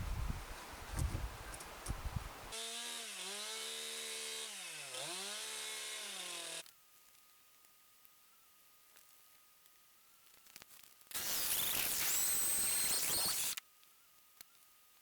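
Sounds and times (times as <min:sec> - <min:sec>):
chainsaw running at high speed: 0:02.5 - 0:06.6.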